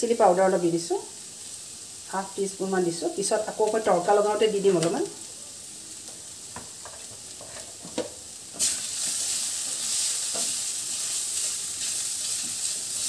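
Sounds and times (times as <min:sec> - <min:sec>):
spices sizzling in oil: 0:00.0 - 0:13.0
spatula scraping and tapping: 0:06.6 - 0:08.2.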